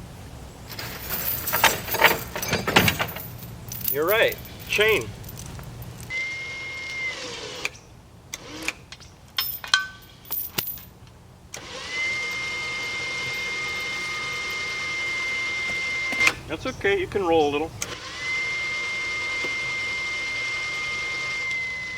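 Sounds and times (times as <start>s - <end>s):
chain clinking: 0.7s - 6.1s, 9.4s - 10.9s, 12.3s - 14.8s
electric motor whine: 6.1s - 7.8s, 11.6s - 16.4s, 17.8s - 21.9s.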